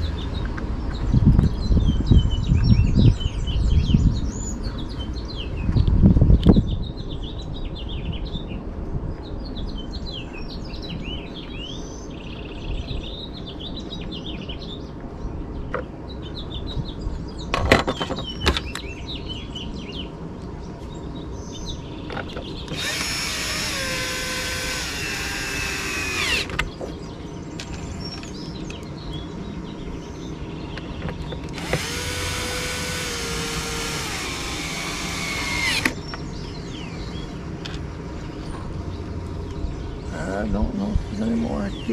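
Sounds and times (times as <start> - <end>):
faint birdsong: 0.0 - 41.9
electric drill running: 22.7 - 26.6, 31.5 - 36.0
sharp clicks: 31.4 - 36.0.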